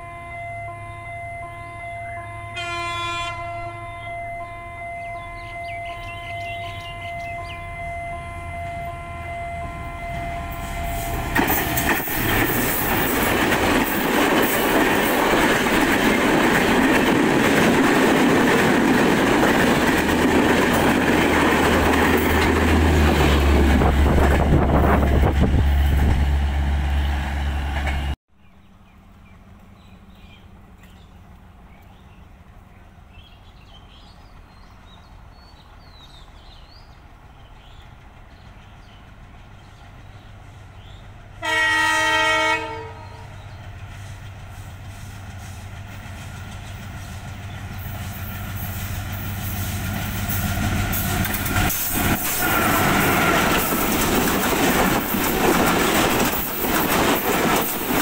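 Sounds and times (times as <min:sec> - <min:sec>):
train horn: 0:00.0 - 0:11.4, 0:41.4 - 0:43.4, 0:52.0 - 0:54.2
train rushing over rails: 0:05.3 - 0:28.2, 0:29.0 - 0:58.0.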